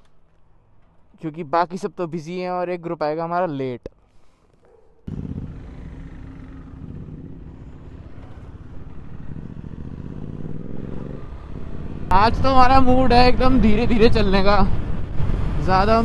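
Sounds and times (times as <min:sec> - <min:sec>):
motorcycle engine running: 0:05.1 - 0:13.8.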